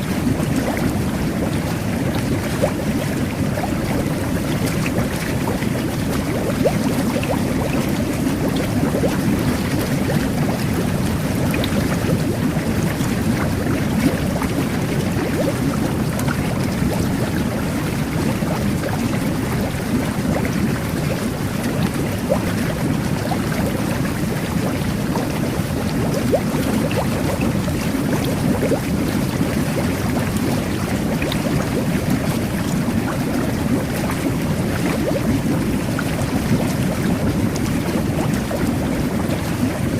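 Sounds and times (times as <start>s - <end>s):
small bubbles popping: 0.0s - 39.9s
water jets churning and bubbling: 0.0s - 39.9s.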